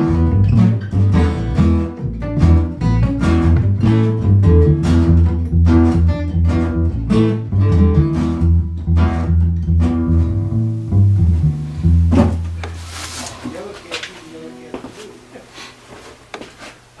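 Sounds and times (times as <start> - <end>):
bass line: 0.0 - 13.1
strummed acoustic guitar: 0.0 - 14.7.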